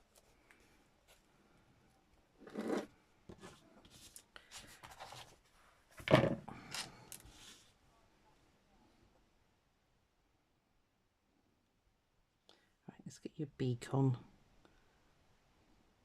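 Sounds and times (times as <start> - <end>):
paper rustling and rubbing: 3.4 - 5.8.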